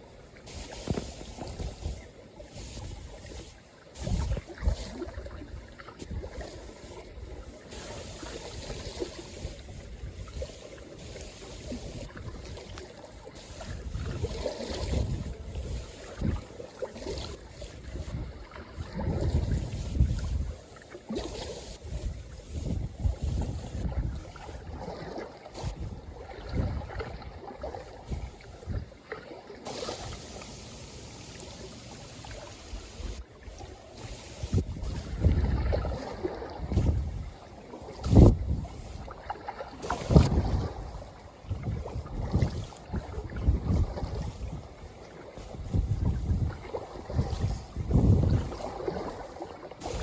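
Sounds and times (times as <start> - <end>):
small waves lapping and splashing: 0.0 - 50.0
wind rumbling on microphone: 0.0 - 50.0.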